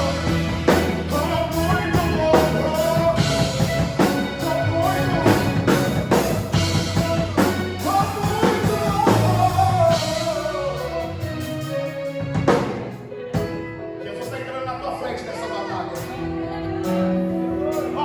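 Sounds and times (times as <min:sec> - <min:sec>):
person singing long notes: 0:00.0 - 0:11.6
drum kit beat: 0:00.0 - 0:13.8
guitar: 0:00.0 - 0:18.0.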